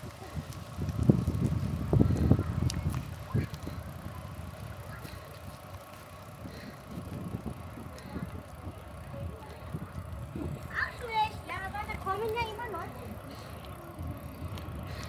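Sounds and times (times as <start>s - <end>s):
wind rumble on microphone: 0.0s - 10.8s
bicycle tyres on path: 0.0s - 15.0s.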